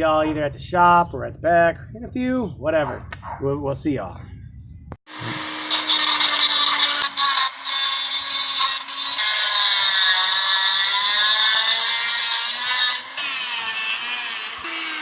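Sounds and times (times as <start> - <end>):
power tool cutting metal: 5.1 - 15.0.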